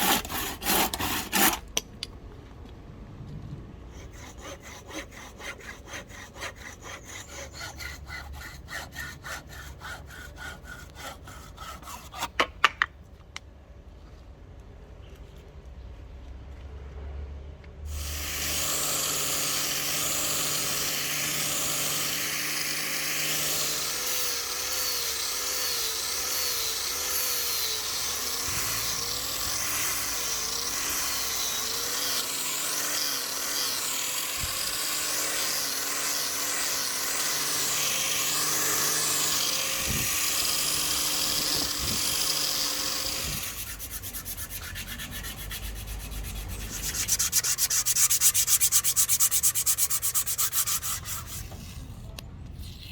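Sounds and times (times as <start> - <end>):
power tool whining on wood: 0.0 - 1.6, 17.9 - 51.8.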